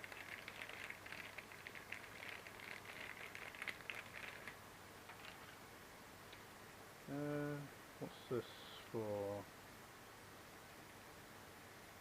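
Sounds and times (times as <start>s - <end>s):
plastic packaging crinkling: 0.0s - 5.6s.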